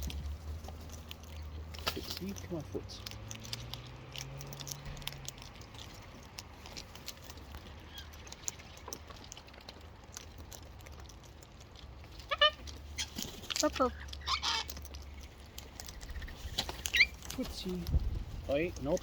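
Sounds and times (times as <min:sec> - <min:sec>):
beak and foot clicks: 0:00.0 - 0:19.0
parrot squawk: 0:12.2 - 0:13.2, 0:14.2 - 0:14.7.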